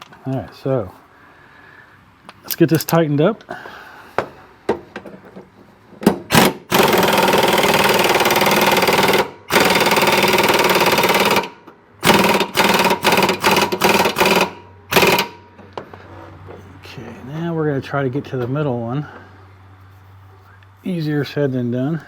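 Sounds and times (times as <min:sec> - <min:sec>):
air impact wrench hammering: 0:06.0 - 0:15.8.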